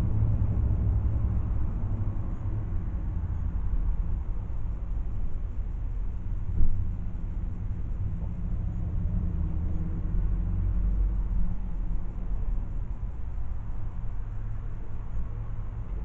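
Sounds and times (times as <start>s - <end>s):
car cabin low rumble: 0.0s - 16.0s.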